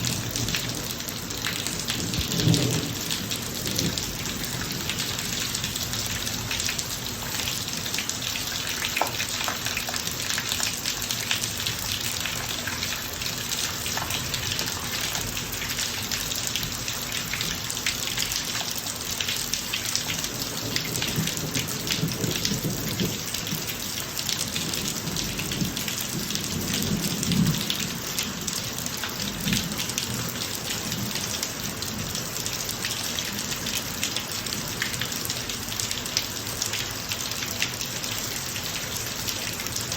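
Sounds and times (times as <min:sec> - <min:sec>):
low thunder rumble: 0:00.0 - 0:05.9
rain on pavement: 0:00.0 - 0:39.9.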